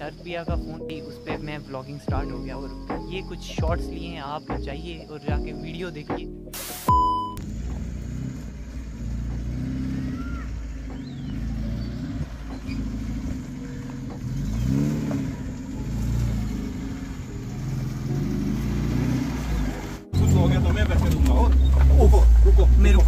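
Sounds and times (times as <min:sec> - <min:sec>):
off-road engine revving: 0:07.4 - 0:23.0.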